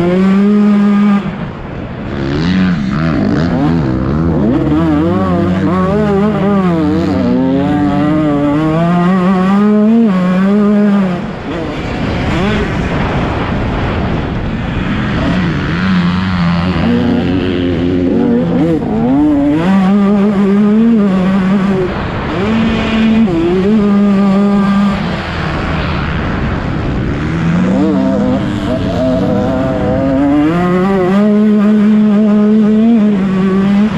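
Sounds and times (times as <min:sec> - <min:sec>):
motocross bike engine revving: 0:00.0 - 0:33.9.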